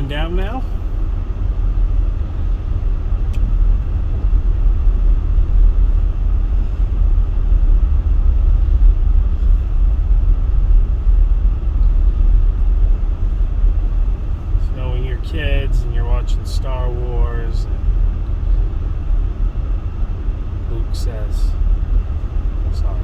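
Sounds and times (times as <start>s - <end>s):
car driving on snowy road: 0.0s - 23.0s
click: 3.3s - 3.5s.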